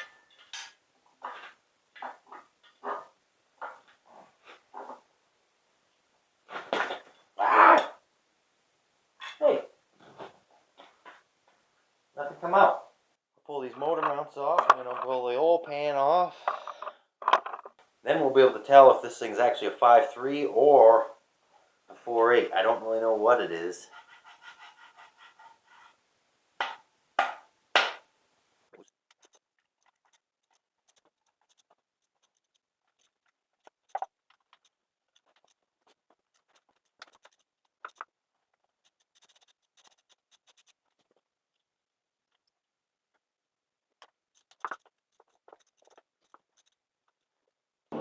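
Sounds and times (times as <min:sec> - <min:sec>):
metal tools clinking and scraping: 0:00.0 - 0:04.2, 0:09.2 - 0:10.3
sharp knocks: 0:26.6 - 0:28.0.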